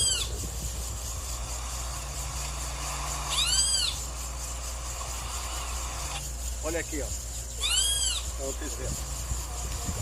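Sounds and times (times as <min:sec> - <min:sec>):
high-pitched animal call: 0:00.0 - 0:00.3, 0:03.3 - 0:04.1, 0:07.6 - 0:08.3
steady low hum: 0:00.0 - 0:10.0.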